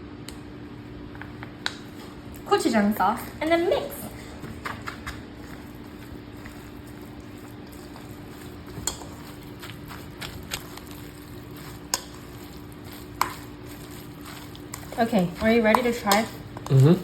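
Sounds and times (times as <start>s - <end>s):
spoon mashing wet food: 4.4s - 17.0s.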